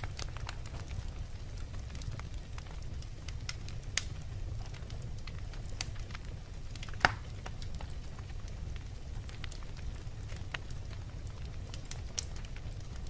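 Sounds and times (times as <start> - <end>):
fire flames rumbling: 0.0 - 13.0
wood fire crackling and popping: 0.0 - 13.0.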